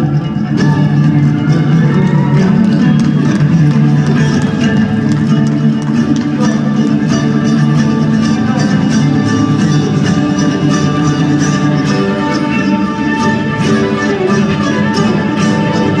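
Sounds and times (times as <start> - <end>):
guitar: 0.0 - 16.0
live band playing: 0.0 - 16.0.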